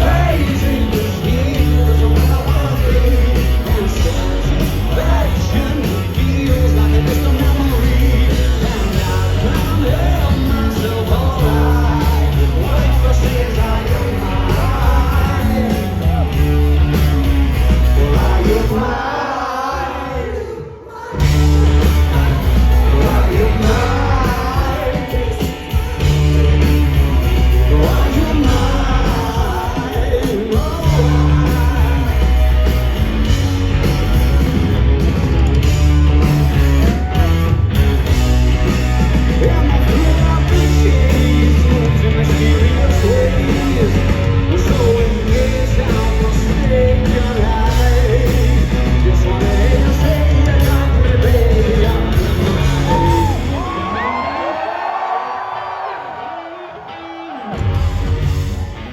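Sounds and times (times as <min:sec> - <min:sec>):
person singing: 0:00.0 - 0:16.6, 0:17.6 - 0:34.5, 0:39.0 - 0:54.6
bass guitar: 0:00.0 - 0:19.2, 0:21.2 - 0:55.0, 0:57.4 - 0:58.9
electric guitars: 0:00.0 - 0:19.3, 0:21.0 - 0:58.9
drums: 0:00.0 - 0:58.9.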